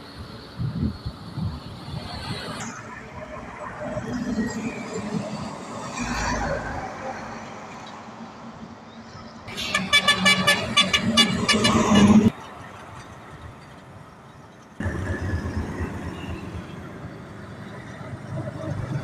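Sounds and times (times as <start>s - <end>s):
road traffic noise: 0.0s - 19.0s
truck horn pulsing: 9.5s - 12.3s.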